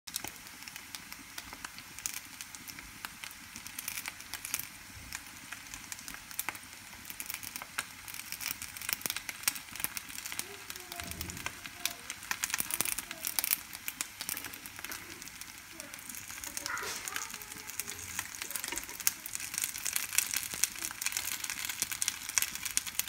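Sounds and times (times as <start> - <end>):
dumplings sizzling in oil: 0.1 - 23.0
spattering oil pops: 5.5 - 10.5, 11.4 - 23.0.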